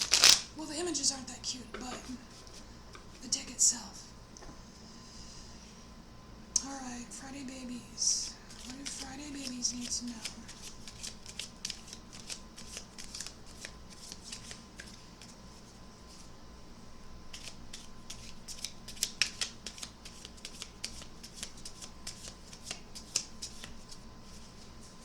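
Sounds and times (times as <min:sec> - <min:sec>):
cards being shuffled by hand: 0:00.0 - 0:00.5, 0:08.4 - 0:16.3, 0:17.3 - 0:25.0.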